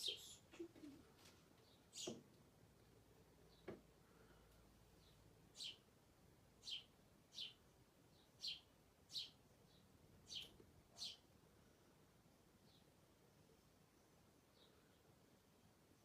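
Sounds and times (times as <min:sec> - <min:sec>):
small bird chirping: 0:00.0 - 0:01.0, 0:01.6 - 0:02.3, 0:05.0 - 0:05.9, 0:06.6 - 0:11.3.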